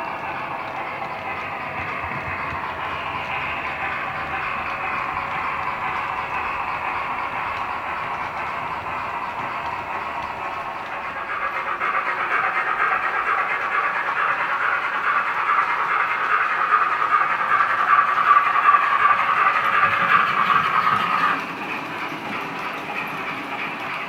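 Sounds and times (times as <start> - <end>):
model train steam sound hiss: 10.0 - 24.0.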